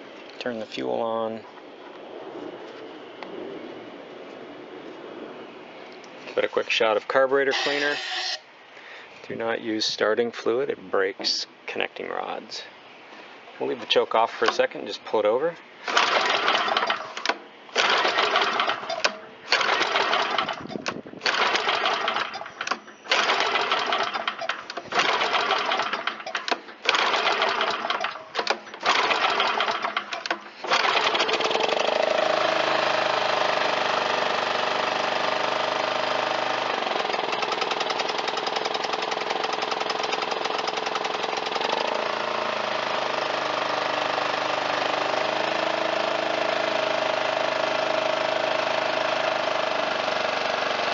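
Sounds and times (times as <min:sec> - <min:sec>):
recoil starter pulls: 0:13.9 - 0:14.8, 0:15.8 - 0:50.9
mower engine running: 0:15.8 - 0:50.9.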